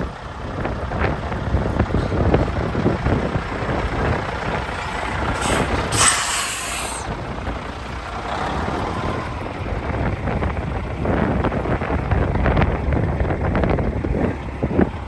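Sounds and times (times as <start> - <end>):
truck diesel engine rumbling: 0.0 - 15.0
air brakes hiss: 4.8 - 7.1.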